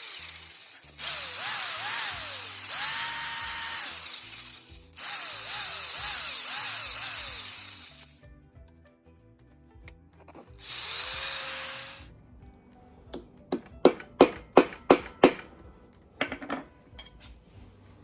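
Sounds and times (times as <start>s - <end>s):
power drill spinning up: 0.0s - 8.2s, 10.6s - 12.1s
background music: 0.1s - 18.0s.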